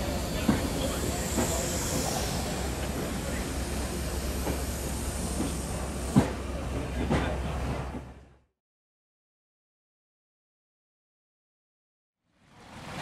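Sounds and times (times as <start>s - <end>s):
train wheels clicking over rail joints: 0.0s - 8.1s.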